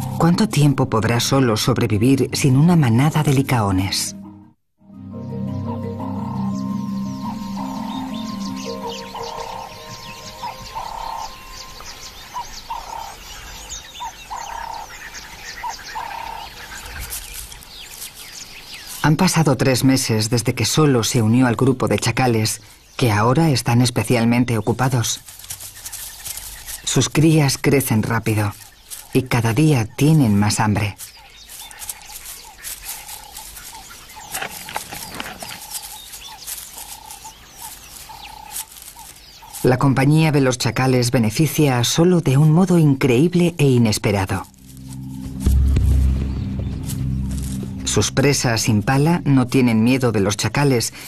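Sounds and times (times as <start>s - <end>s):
birds chirping and twittering: 0.0s - 2.1s, 5.0s - 51.0s
insect ticking: 6.0s - 20.0s, 24.1s - 41.8s, 43.2s - 51.0s.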